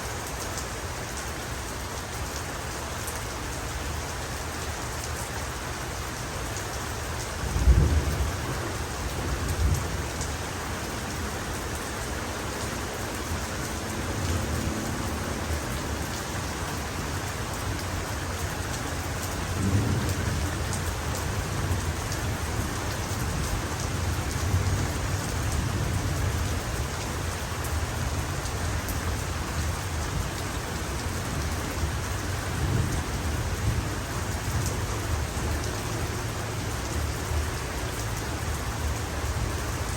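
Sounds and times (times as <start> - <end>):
heavy rain: 0.0 - 39.9
thunder rumbling: 7.4 - 11.0, 18.9 - 26.8.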